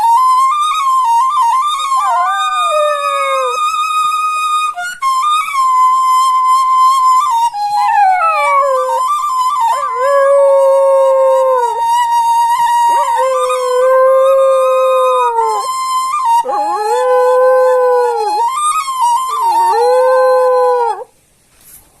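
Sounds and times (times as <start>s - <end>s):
bamboo flute high note: 0.0s - 20.9s
dog howling: 1.5s - 3.6s, 7.7s - 11.9s, 12.5s - 21.1s.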